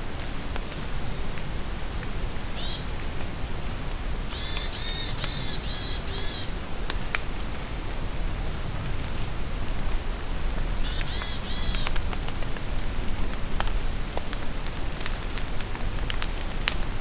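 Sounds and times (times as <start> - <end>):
steady rain in forest: 0.0 - 17.0
birds calling: 0.6 - 2.0, 2.6 - 3.2, 4.1 - 6.6, 10.8 - 12.0.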